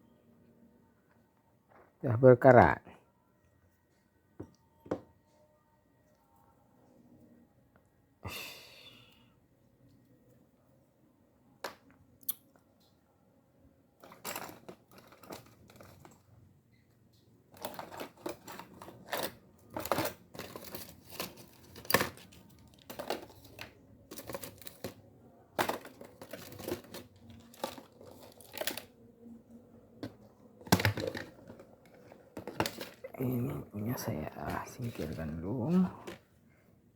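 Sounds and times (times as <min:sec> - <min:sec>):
fishing reel parts clicking and rustling: 0:17.5 - 0:25.0, 0:25.6 - 0:28.9.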